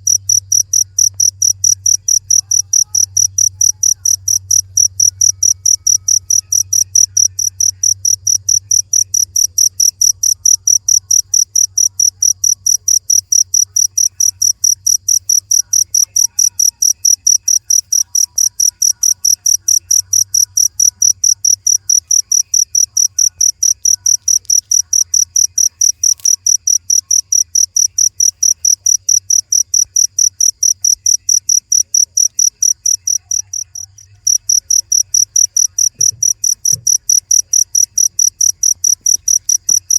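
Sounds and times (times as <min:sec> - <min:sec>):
cricket chirping: 0:00.0 - 0:39.9
faint low hum: 0:00.0 - 0:39.9.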